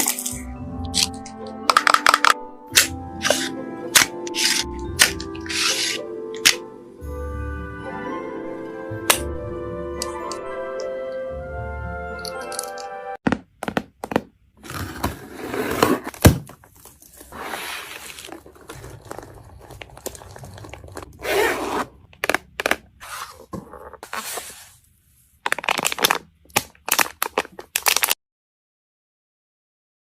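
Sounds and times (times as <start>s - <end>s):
packaging tearing and crinkling: 25.4s - 28.2s.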